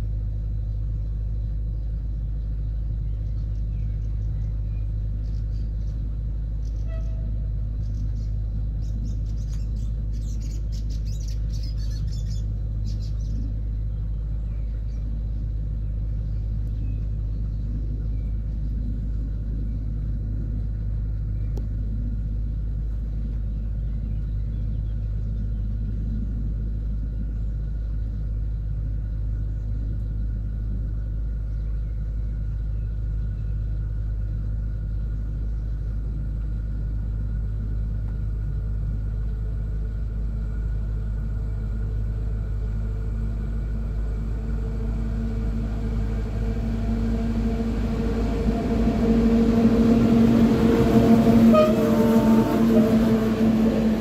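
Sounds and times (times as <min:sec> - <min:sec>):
electric locomotive humming: 0:00.0 - 0:54.0
low rumble: 0:00.0 - 0:54.0.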